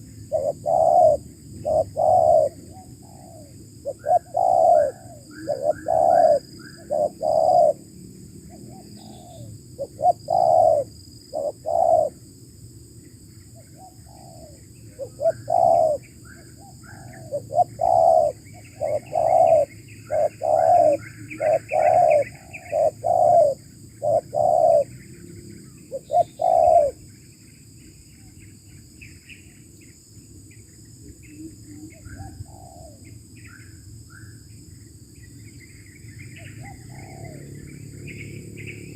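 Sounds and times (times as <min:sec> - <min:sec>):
dove cooing: 0:00.0 - 0:07.9, 0:08.5 - 0:12.2, 0:13.8 - 0:25.1, 0:25.9 - 0:27.0, 0:31.0 - 0:33.1, 0:36.4 - 0:38.9
small birds chirping faintly: 0:00.0 - 0:38.9.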